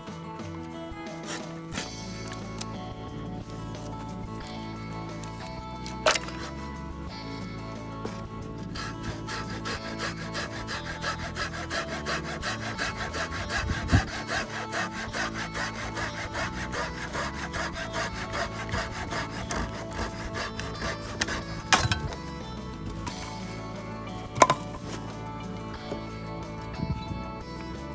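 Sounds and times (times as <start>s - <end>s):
wood cracking: 0.0s - 26.3s
hand saw cutting wood: 1.0s - 26.4s.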